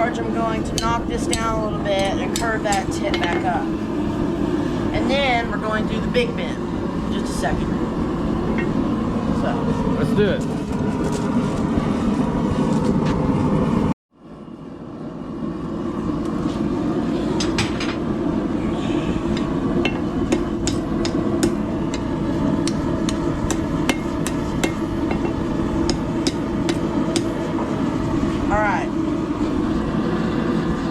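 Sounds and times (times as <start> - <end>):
hammer striking steel on anvil: 0.7 - 3.6, 19.4 - 27.3
steady low roar: 15.2 - 30.9.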